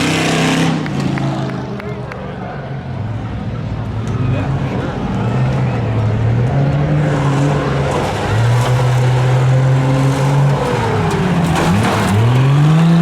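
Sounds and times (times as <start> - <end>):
pickup truck engine revving: 0.0 - 1.7.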